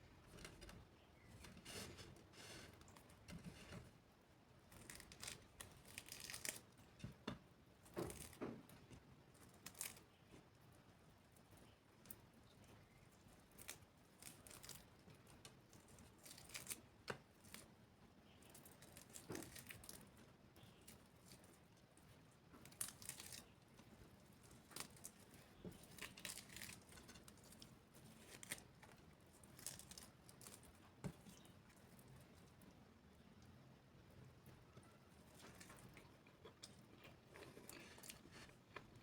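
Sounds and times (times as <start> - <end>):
food crackling and tearing: 4.6 - 10.6, 11.4 - 33.5, 34.4 - 39.0
chewing: 34.7 - 39.0.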